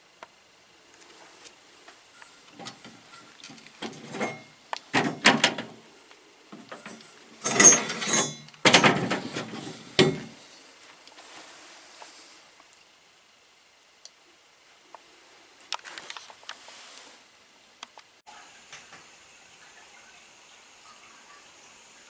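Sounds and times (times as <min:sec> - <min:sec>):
parts knocking and rattling: 0:02.4 - 0:05.9, 0:06.5 - 0:10.4.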